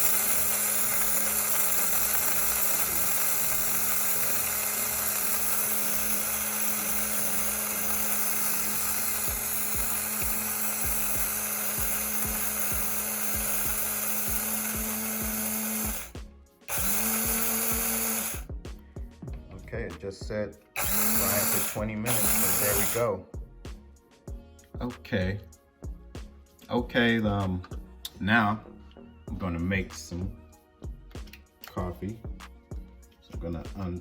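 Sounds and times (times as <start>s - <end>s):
electric coffee grinder running: 0.0s - 18.5s, 20.8s - 23.1s.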